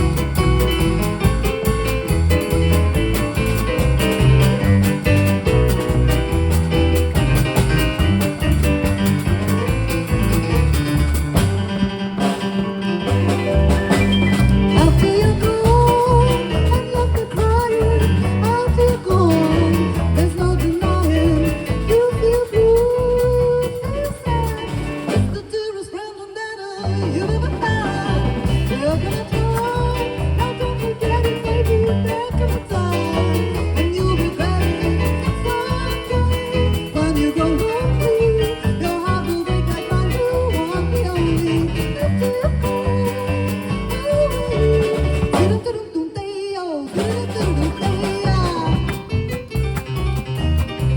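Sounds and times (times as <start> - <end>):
live swing jazz band: 0.0 - 25.5, 26.8 - 45.8, 46.9 - 50.9
lead singer singing: 14.6 - 49.2.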